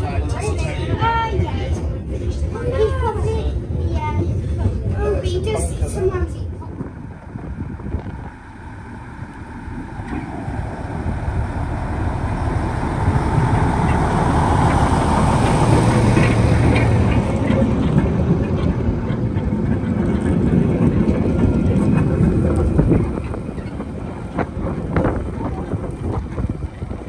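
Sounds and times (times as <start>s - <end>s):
train running: 0.0s - 27.0s
low hum: 6.5s - 27.0s.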